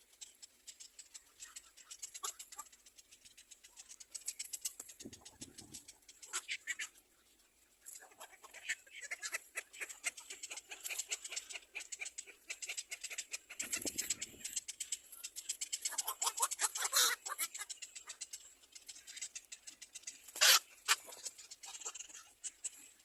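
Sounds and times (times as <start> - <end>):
nestlings chirping: 7.9 - 23.0.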